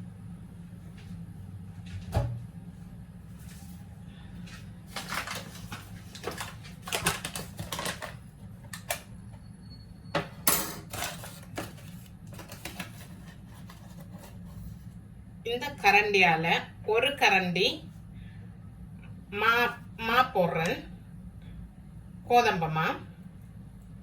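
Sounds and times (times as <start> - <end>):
low steady hum: 0.0 - 24.0
utensils clattering and scraping: 4.9 - 9.0, 10.2 - 14.6.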